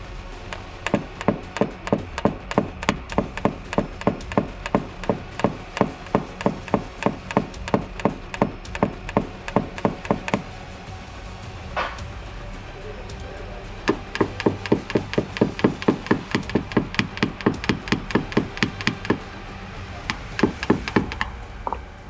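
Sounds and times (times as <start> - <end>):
rapid hammer taps: 0.5 - 10.6, 13.8 - 21.8.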